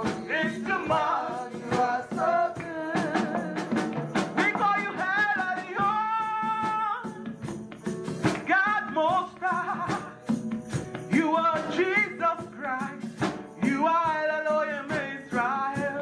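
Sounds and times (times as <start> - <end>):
person singing: 0.0 - 7.3, 8.3 - 10.2
live band with percussion hits: 0.0 - 16.0.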